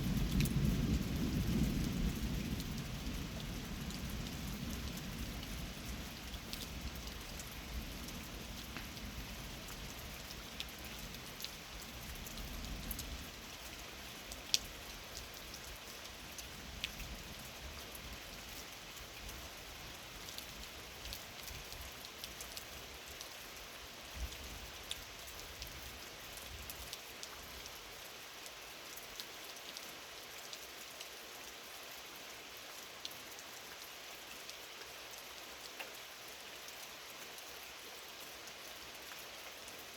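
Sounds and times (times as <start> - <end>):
steady rain: 0.0 - 39.9
raindrops ticking: 6.3 - 9.8.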